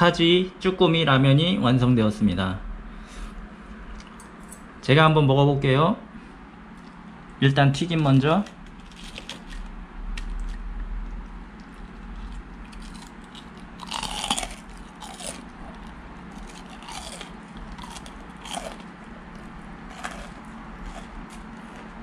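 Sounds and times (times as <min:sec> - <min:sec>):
crunching fried fish: 0:08.0 - 0:22.0.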